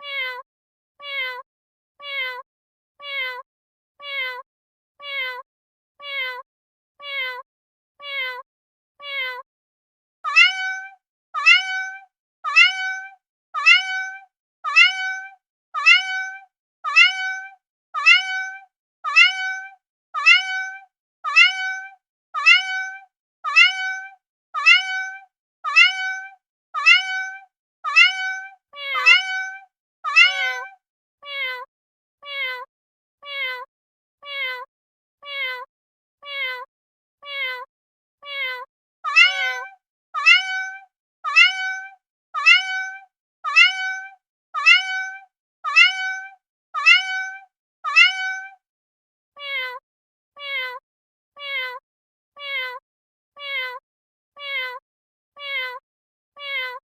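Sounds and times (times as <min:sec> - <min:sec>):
cat meowing: 0:00.0 - 0:00.4, 0:01.0 - 0:01.4, 0:02.0 - 0:02.4, 0:03.0 - 0:03.4, 0:04.0 - 0:04.4, 0:05.0 - 0:05.4, 0:06.0 - 0:06.4, 0:07.0 - 0:07.4, 0:08.0 - 0:08.4, 0:09.0 - 0:09.4, 0:10.3 - 0:48.6, 0:49.4 - 0:49.8, 0:50.4 - 0:50.8, 0:51.4 - 0:51.8, 0:52.4 - 0:52.8, 0:53.4 - 0:53.8, 0:54.4 - 0:54.8, 0:55.4 - 0:55.8, 0:56.4 - 0:56.8
lower falling cat meow: 0:00.0 - 0:00.4, 0:01.0 - 0:01.4, 0:02.0 - 0:02.4, 0:03.0 - 0:03.4, 0:04.0 - 0:04.4, 0:05.0 - 0:05.4, 0:06.0 - 0:06.4, 0:07.0 - 0:07.4, 0:09.0 - 0:09.4, 0:10.3 - 0:48.6, 0:54.4 - 0:54.8, 0:55.4 - 0:55.8, 0:56.4 - 0:56.8.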